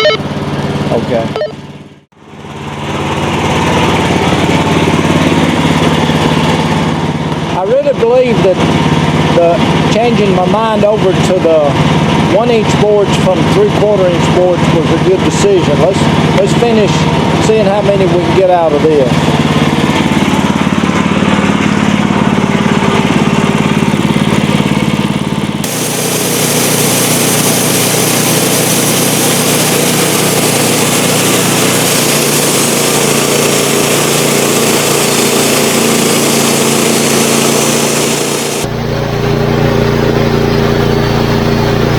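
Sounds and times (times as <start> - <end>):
sawmill blade sawing boards: 25.6 - 38.7.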